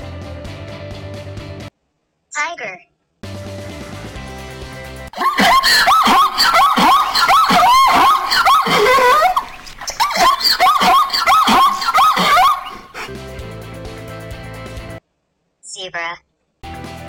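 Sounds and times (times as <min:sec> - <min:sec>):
zebra yelping barks: 0:05.7 - 0:13.0.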